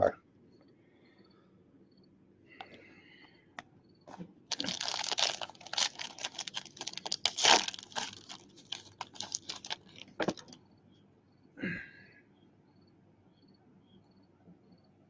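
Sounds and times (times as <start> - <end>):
wrapper tearing and crinkling: 4.5 - 10.6.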